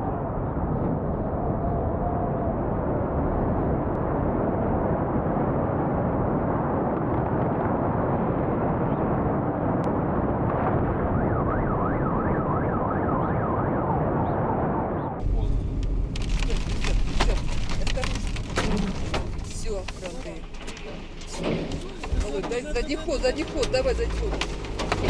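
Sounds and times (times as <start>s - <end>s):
dense rushing noise: 0.0s - 11.7s
emergency siren wailing: 10.7s - 15.2s.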